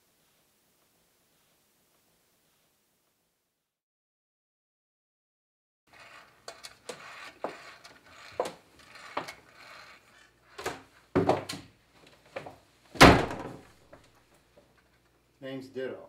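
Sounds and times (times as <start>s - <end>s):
hard objects knocking and clattering: 10.6s - 11.6s.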